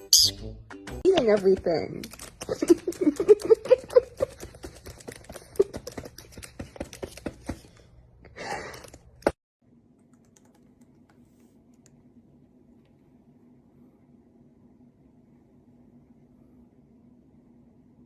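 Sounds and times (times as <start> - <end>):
faint steady hum: 7.7 - 18.0.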